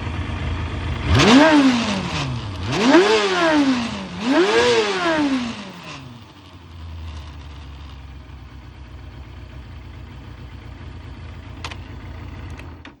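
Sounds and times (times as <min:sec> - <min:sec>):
motorcycle engine revving and idling: 0:00.0 - 0:13.0.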